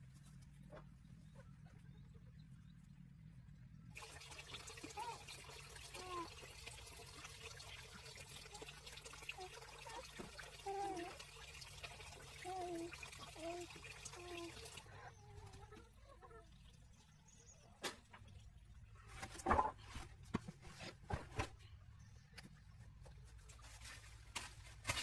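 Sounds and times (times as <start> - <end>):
faint trickling water: 3.9 - 20.1.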